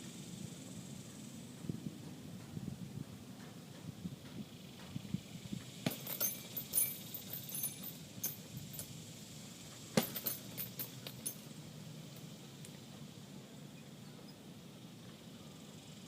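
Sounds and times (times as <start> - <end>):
chain clinking and jingling: 5.8 - 9.0, 10.0 - 11.6.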